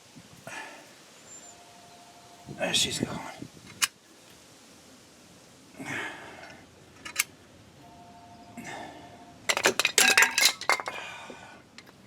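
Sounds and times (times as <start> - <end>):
two-tone phone ring: 7.8 - 9.4.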